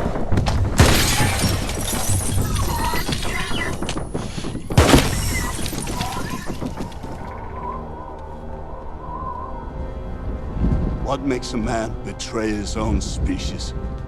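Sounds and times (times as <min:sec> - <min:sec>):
film score: 0:00.0 - 0:14.0
shattering crackling debris: 0:00.4 - 0:07.5
loud crashes: 0:00.8 - 0:03.8.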